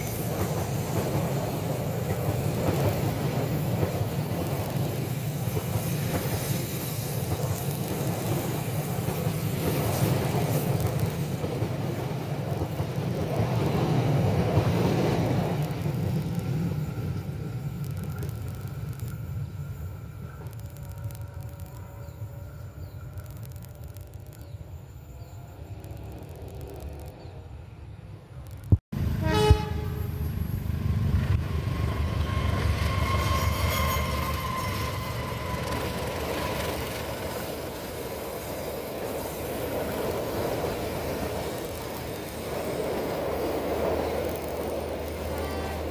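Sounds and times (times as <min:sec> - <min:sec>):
train wheels rumbling on rail: 0:00.0 - 0:27.7, 0:28.3 - 0:45.9
train horn: 0:29.0 - 0:30.4, 0:31.8 - 0:36.5, 0:45.2 - 0:45.9.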